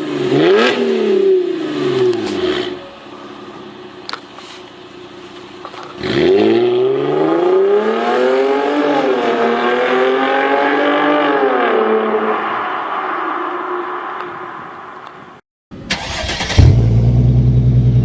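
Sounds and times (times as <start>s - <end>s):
car engine revving: 6.0s - 13.3s.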